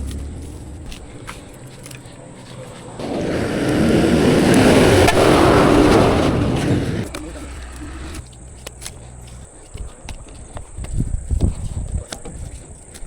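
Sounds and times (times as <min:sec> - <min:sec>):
heavy vehicle rumbling: 0:00.0 - 0:08.2
low hum: 0:00.0 - 0:09.6.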